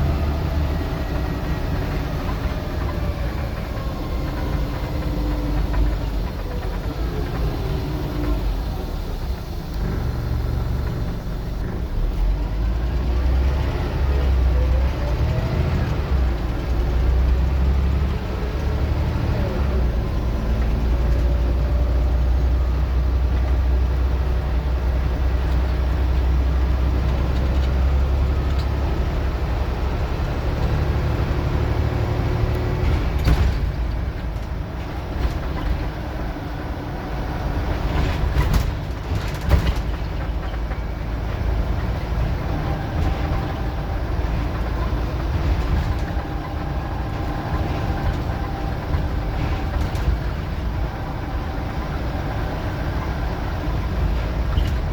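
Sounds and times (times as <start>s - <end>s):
bus engine droning: 0.0s - 54.9s
sharp knocks and rattles: 37.6s - 52.6s.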